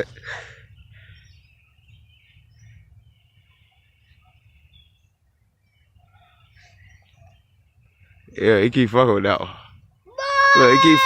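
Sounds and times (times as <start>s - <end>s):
faint bird chirps: 0.0s - 8.8s.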